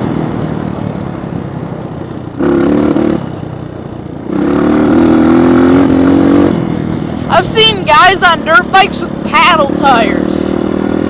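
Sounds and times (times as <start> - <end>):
dirt bike engine revving: 2.4 - 3.4, 4.3 - 11.0.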